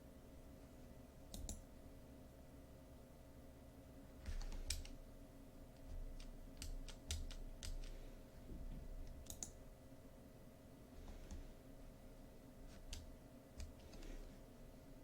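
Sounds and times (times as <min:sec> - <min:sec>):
faint steady hum: 0:00.0 - 0:15.0
mouse clicks: 0:01.3 - 0:01.6, 0:09.1 - 0:09.6.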